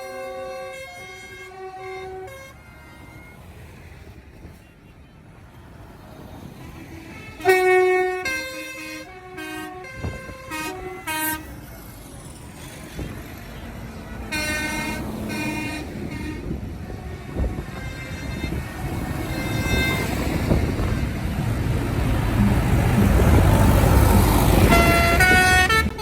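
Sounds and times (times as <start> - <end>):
vehicle horns tooting: 0.0 - 3.5, 6.8 - 11.6, 12.8 - 21.7, 24.2 - 26.0.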